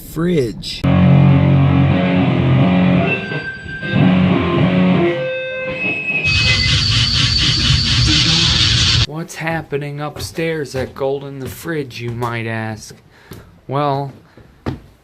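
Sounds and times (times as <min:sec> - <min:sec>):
ringing guitar notes: 0:00.9 - 0:09.1
harsh music with fast beat: 0:06.3 - 0:09.1.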